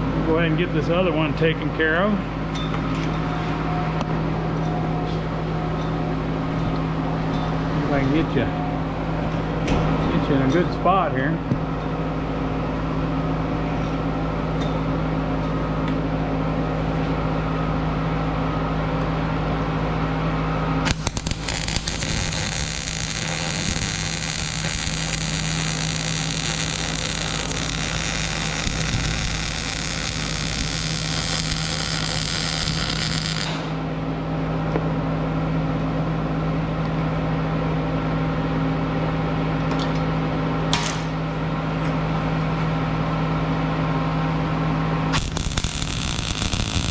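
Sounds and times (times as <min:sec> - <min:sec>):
welder electrical hum: 0:00.0 - 0:46.9
welding arc crackle and hiss: 0:20.8 - 0:33.8, 0:45.1 - 0:46.9.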